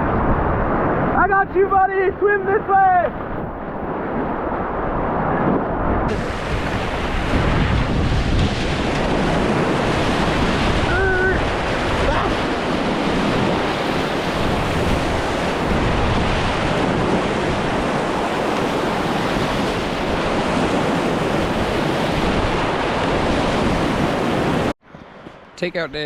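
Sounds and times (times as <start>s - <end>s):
wind on microphone: 0.0s - 25.3s
whitewater rapids rushing: 6.1s - 24.7s.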